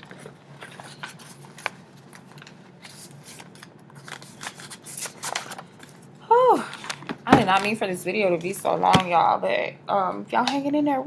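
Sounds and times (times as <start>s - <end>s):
paper rustling: 0.0s - 6.0s.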